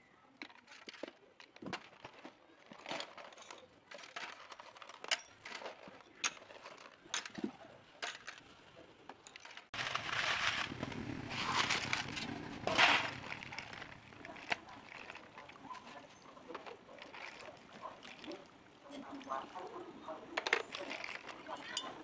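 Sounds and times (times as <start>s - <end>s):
metal tools and parts clinking: 0.4s - 8.5s, 9.1s - 10.8s, 20.4s - 22.0s.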